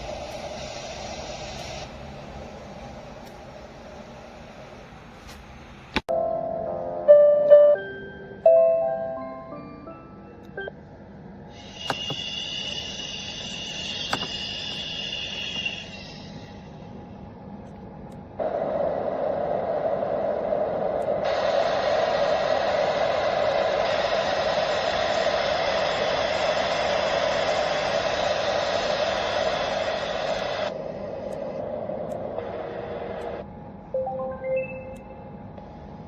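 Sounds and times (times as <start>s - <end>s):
white noise machine hiss: 0.0s - 6.1s, 9.1s - 34.1s
short beeping tones: 34.0s - 35.3s.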